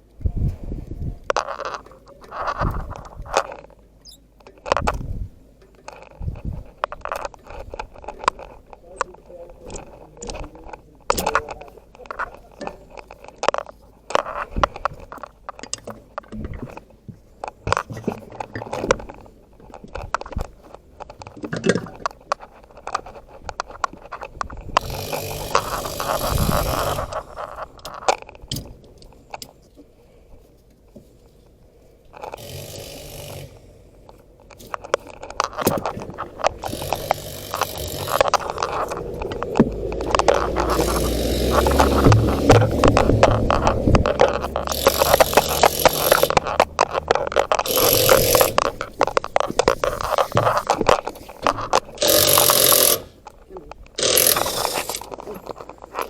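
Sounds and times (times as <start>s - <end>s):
tools and metal parts clanking: 1.3s - 29.7s, 32.2s - 56.0s
low rumble: 38.4s - 45.2s.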